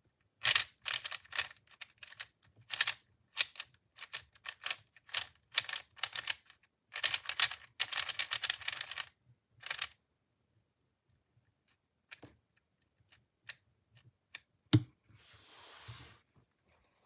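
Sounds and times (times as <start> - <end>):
speedcube clicking turns: 0.4 - 10.0.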